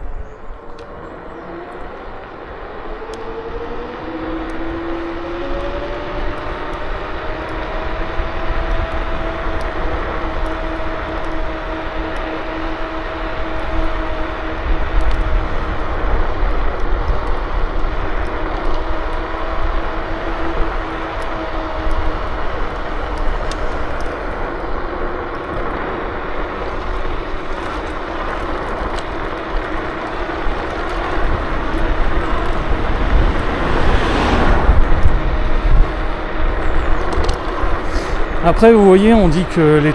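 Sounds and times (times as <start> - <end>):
wind and tyre noise: 0.0 - 39.9
electric motor whine: 18.0 - 38.4.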